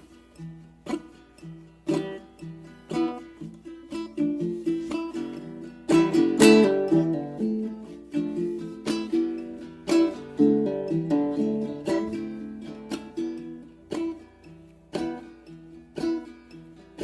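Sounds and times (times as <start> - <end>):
strummed acoustic string instrument: 0.0 - 17.0.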